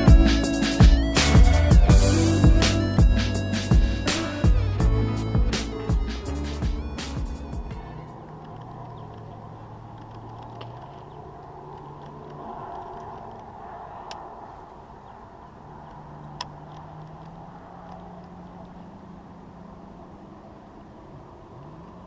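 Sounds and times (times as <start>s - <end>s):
distant engine hum: 0.0s - 22.0s
sharp clicks: 7.0s - 13.5s.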